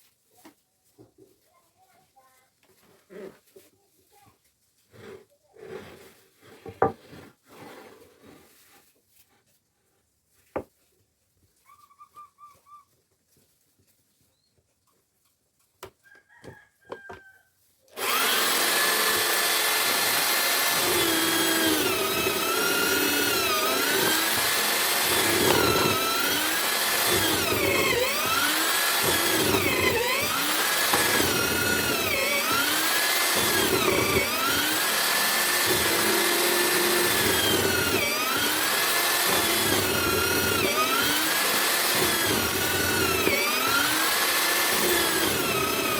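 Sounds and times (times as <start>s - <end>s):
chisel mortiser motor whining: 17.9s - 45.9s.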